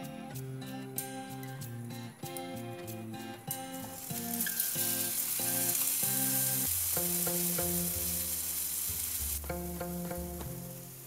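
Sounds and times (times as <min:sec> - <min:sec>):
tomatoes sizzling in frying pan: 0:02.3 - 0:11.0.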